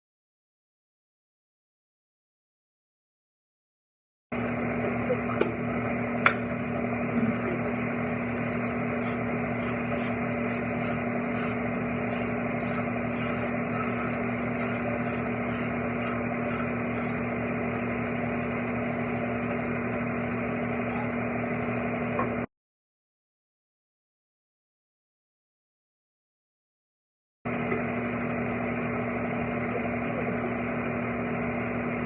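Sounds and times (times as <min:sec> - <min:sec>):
kitchen appliance motor hum: 0:04.4 - 0:22.4, 0:27.5 - 0:32.0.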